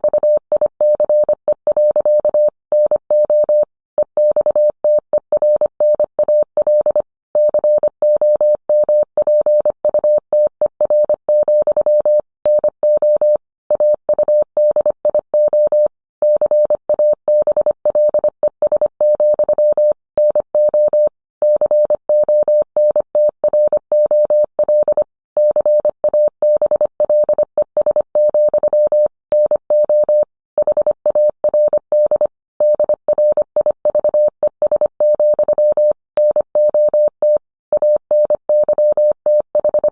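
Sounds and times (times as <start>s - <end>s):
morse code tone: 24.0s - 39.9s.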